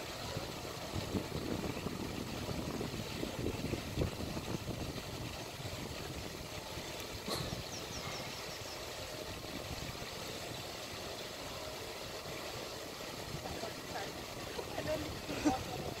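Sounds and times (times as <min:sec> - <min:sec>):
engine-like low rumble: 0:00.0 - 0:16.0
small bird chirping: 0:07.4 - 0:09.0.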